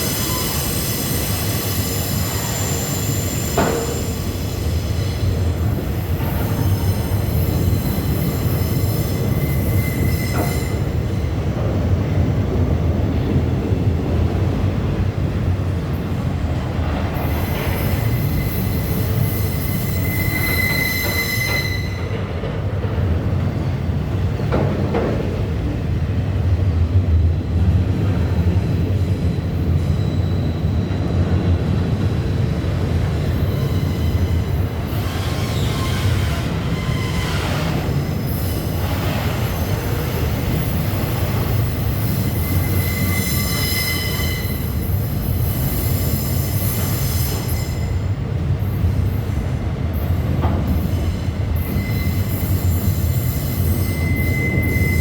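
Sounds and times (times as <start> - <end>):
high wheel squeal: 0.0 - 5.3, 6.2 - 11.0, 17.4 - 22.2, 29.7 - 31.3, 33.3 - 40.8, 41.7 - 48.0, 50.9 - 55.0
freight train rumbling on rails: 0.0 - 55.0.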